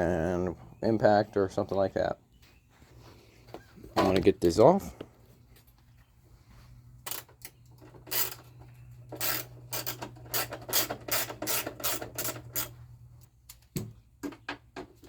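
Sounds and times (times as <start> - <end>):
ratchet wrench ratcheting: 8.1 - 8.5, 9.2 - 12.8.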